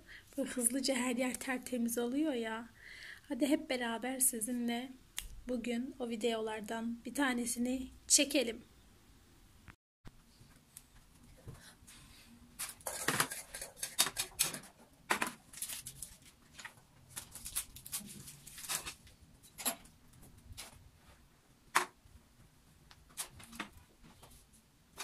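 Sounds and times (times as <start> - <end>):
household items clicking and knocking: 12.6 - 20.8.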